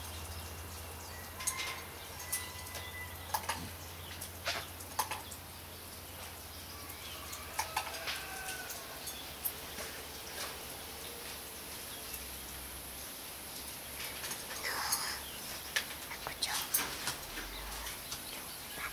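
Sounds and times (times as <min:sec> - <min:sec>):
birds chirping faintly: 0:00.0 - 0:18.9
sharp taps and clicks: 0:03.3 - 0:05.4.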